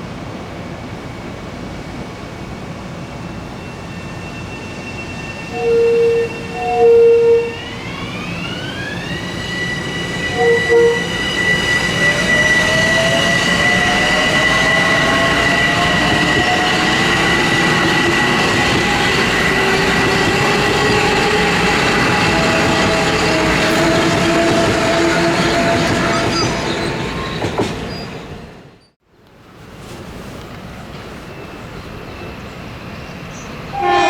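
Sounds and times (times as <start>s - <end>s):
electric train motors whining: 3.9s - 28.3s
short loud tones: 4.3s - 12.9s.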